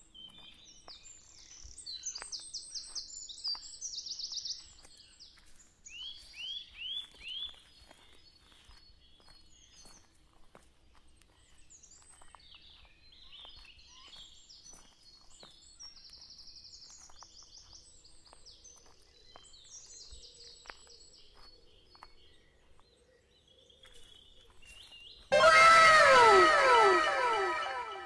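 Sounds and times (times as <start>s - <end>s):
rustles and steps in undergrowth: 4.7s - 19.9s.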